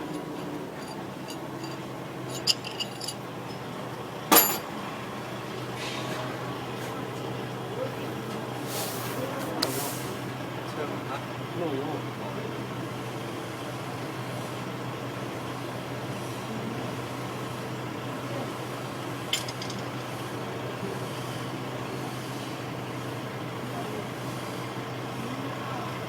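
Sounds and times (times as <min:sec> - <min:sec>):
sharp metallic clink: 0:00.8 - 0:03.2, 0:04.3 - 0:04.7.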